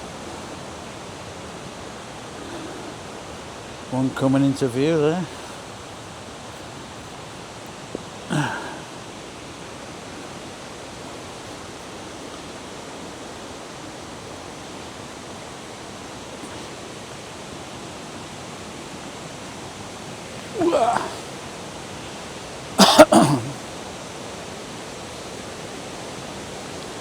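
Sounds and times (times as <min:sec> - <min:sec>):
waterfall rushing: 0:08.0 - 0:10.4, 0:20.0 - 0:21.2, 0:22.8 - 0:23.6
short vocal sound: 0:08.3 - 0:08.8, 0:20.5 - 0:21.2, 0:22.8 - 0:23.6.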